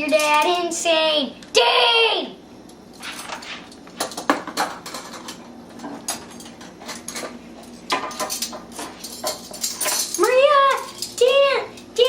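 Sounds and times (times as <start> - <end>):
dishes and cutlery clinking: 3.0 - 11.3.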